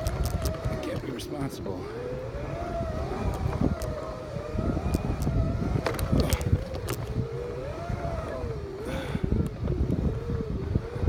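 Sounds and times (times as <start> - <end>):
electric drive whining: 0.0 - 11.0.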